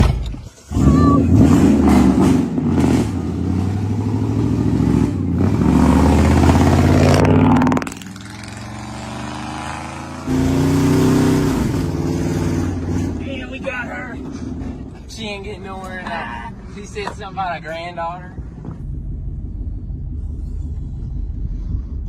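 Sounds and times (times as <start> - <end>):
pickup truck engine revving: 0.7 - 15.0.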